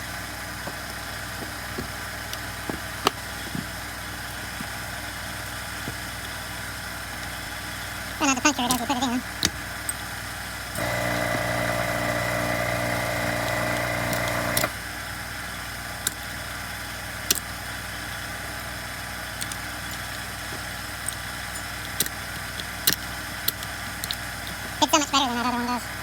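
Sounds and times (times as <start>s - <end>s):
low background hum: 0.0s - 26.0s
machine hum: 6.7s - 14.8s.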